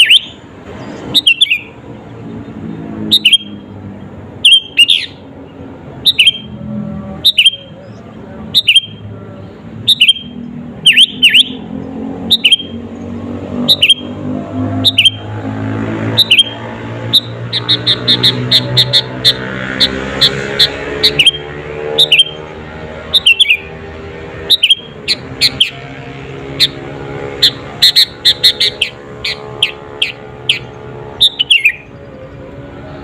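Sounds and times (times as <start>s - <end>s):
bird whistled calls: 0.0s - 0.4s, 1.2s - 1.7s, 3.1s - 3.6s, 4.4s - 5.2s, 6.0s - 6.5s, 7.2s - 7.8s, 8.6s - 9.0s, 9.9s - 11.6s, 12.3s - 12.8s, 13.7s - 14.1s, 14.8s - 15.2s, 16.2s - 21.4s, 22.0s - 22.4s, 23.2s - 23.7s, 24.5s - 25.8s, 27.4s - 31.9s.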